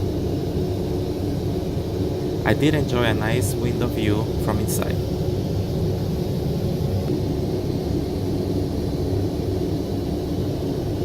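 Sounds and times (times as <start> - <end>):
faint even hum: 0.0 - 11.0
airliner cabin rumble: 1.4 - 10.2.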